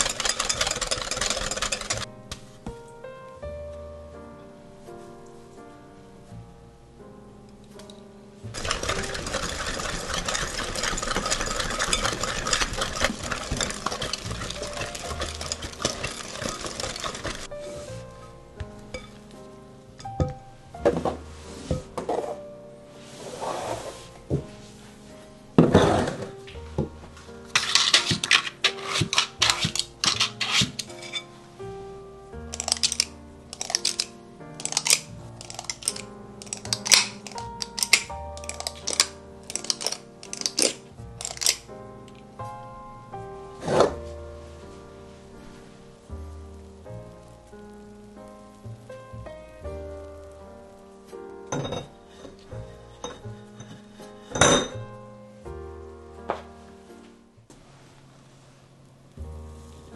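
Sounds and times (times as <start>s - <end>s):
batter stirred in glass bowl: 0.0s - 2.1s, 8.5s - 18.0s, 18.9s - 19.2s, 27.5s - 31.2s, 32.5s - 41.7s, 51.5s - 54.8s
utensils clicking against dishes: 0.0s - 2.1s, 8.6s - 17.8s, 19.0s - 19.2s, 27.6s - 31.2s, 32.5s - 41.7s
soft music: 0.0s - 59.9s.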